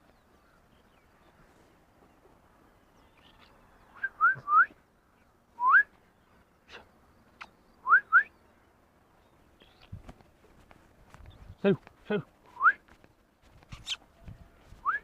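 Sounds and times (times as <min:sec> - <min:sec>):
person whistling to call a dog: 0:04.0 - 0:04.8, 0:05.6 - 0:05.9.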